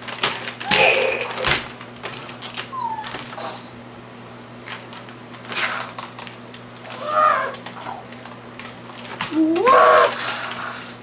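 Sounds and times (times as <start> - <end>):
child's wavering vocal sound: 9.3 - 10.2.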